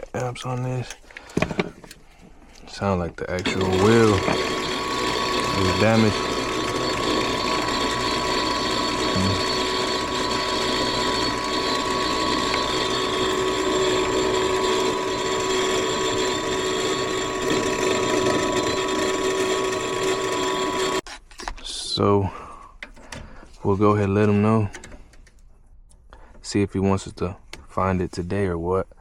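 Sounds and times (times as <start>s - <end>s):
furnace motor rattling grind: 3.4s - 21.0s.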